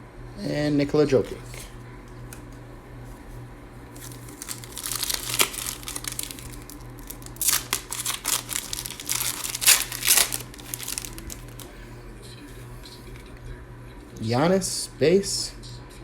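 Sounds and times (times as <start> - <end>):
low steady hum: 0.0 - 16.0
plastic wrapper tearing and crinkling: 3.9 - 11.7.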